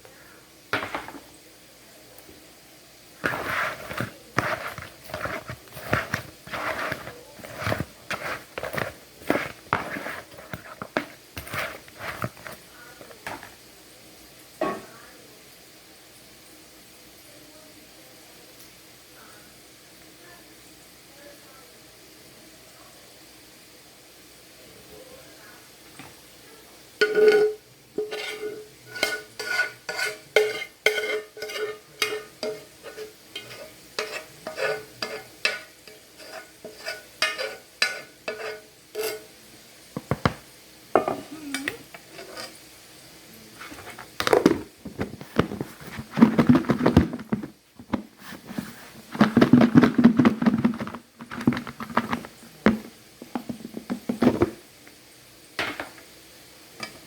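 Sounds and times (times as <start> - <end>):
clattering and scraping while stirring: 0.8 - 1.4, 3.2 - 13.6, 27.0 - 39.4, 40.0 - 42.7, 43.5 - 54.7
utensil clinking on cookware: 3.2 - 13.5, 27.0 - 39.3, 41.0 - 42.6.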